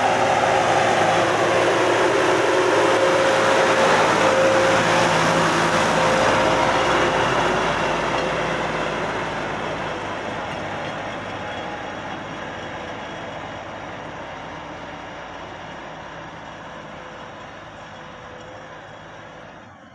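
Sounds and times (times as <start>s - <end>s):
steady whine: 0.0s - 10.4s
tractor engine running: 0.0s - 19.9s.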